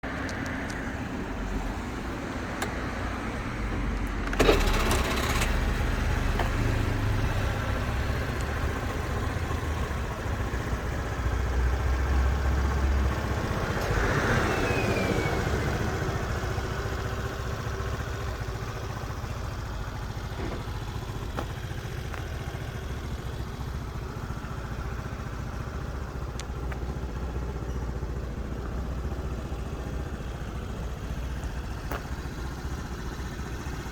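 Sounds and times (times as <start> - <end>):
scooter engine starting and idling: 0.2 - 33.9.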